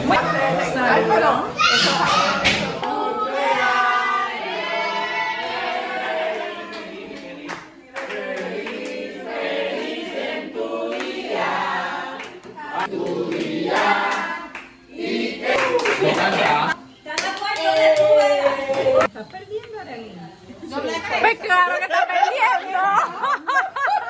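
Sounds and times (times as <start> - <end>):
group singing unaccompanied: 0.0 - 16.8.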